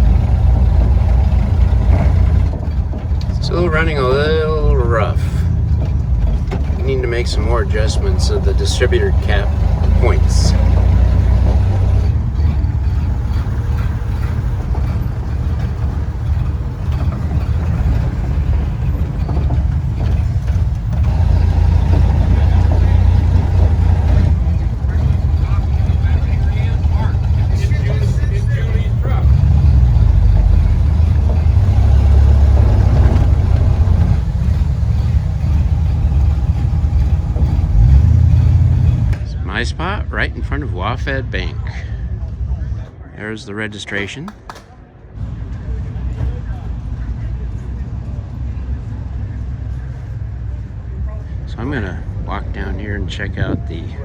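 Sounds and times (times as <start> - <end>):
old truck engine running rough: 0.0 - 42.8.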